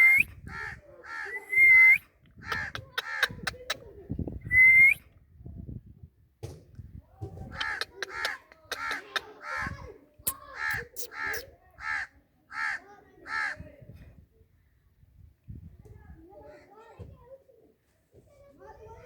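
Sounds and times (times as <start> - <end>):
parrot short calls: 2.4 - 3.8, 7.5 - 9.7, 10.3 - 12.0.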